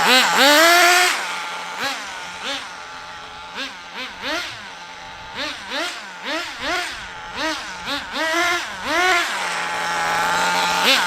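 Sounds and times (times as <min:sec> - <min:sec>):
rc car engine revving and idling: 0:00.0 - 0:11.0.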